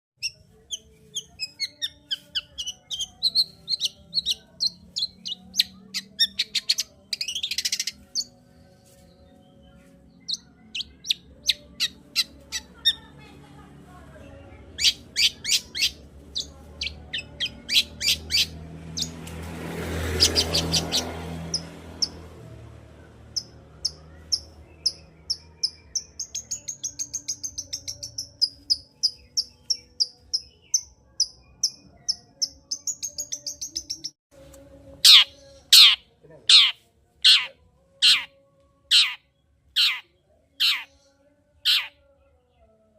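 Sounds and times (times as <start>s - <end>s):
harsh rasping bird call: 35.0s - 38.3s, 38.9s - 39.2s, 39.8s - 41.0s, 41.6s - 41.9s.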